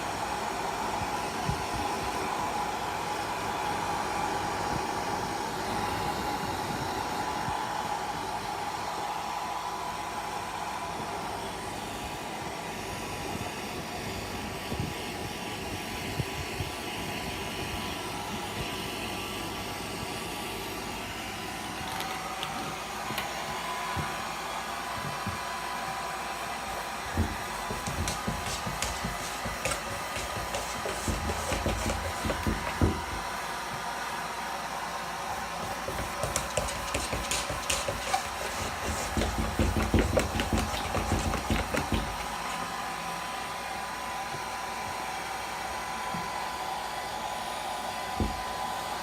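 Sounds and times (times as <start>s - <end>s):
hair dryer blowing: 0.0s - 49.0s.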